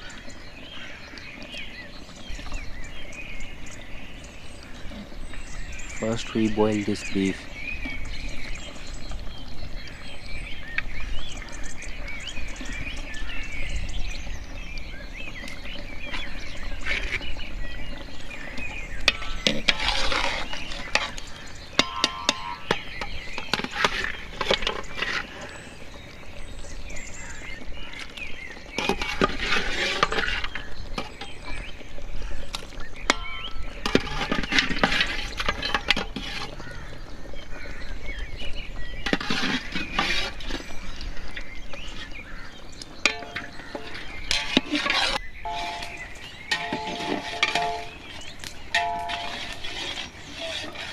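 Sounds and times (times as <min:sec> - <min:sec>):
birds chirping: 0:00.0 - 0:50.9
metal pot and utensils clinking: 0:19.0 - 0:25.5, 0:28.6 - 0:31.6, 0:33.1 - 0:36.7, 0:39.0 - 0:40.8, 0:43.0 - 0:50.9.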